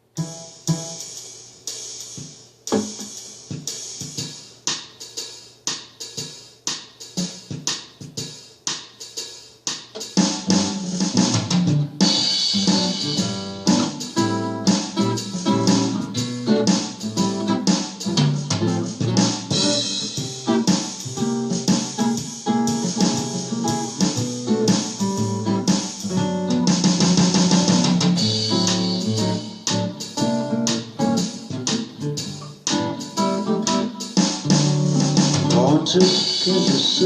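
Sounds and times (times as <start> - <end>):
drum-kit beat: 0.0 - 37.0
keyboard bass and chords: 10.5 - 37.0.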